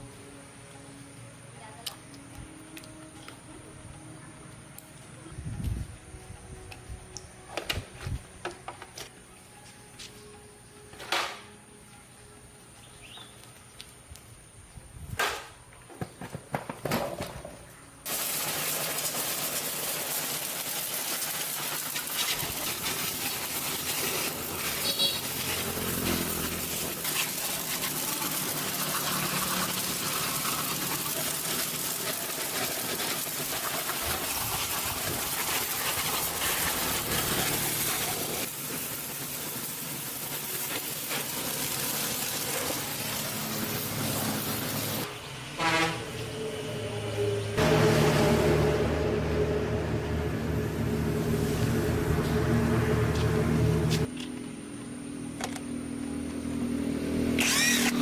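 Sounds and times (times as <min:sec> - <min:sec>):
water spraying under pressure: 0:18.0 - 0:46.0, 0:50.3 - 0:54.1.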